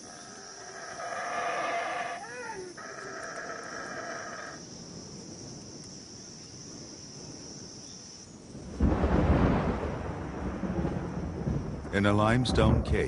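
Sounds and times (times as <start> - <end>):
animal call: 0.0 - 4.6
high insect drone: 0.0 - 11.8
thunder rumble: 4.6 - 13.0.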